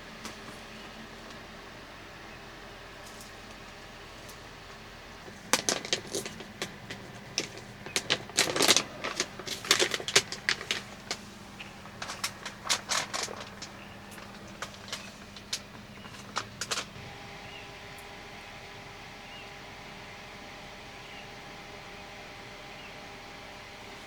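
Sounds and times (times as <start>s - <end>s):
light clicks and clatter: 5.2s - 17.0s.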